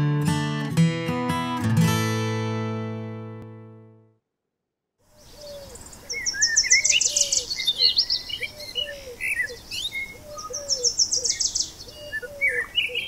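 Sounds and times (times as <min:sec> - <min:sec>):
low repeated bird call: 0:05.0 - 0:13.0
scattered bird chirps: 0:05.1 - 0:13.0.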